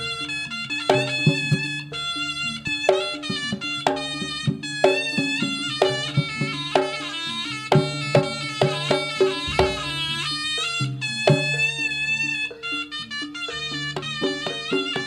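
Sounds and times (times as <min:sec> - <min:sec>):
reed shawm melody: 0:00.0 - 0:15.0
regular drum strokes: 0:00.9 - 0:11.8
held low note: 0:08.1 - 0:12.4.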